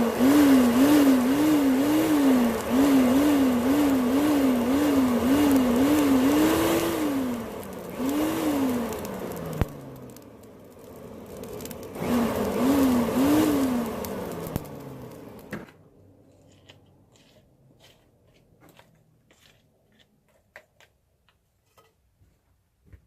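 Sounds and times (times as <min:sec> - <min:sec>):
small motor whirring: 0:00.0 - 0:15.5.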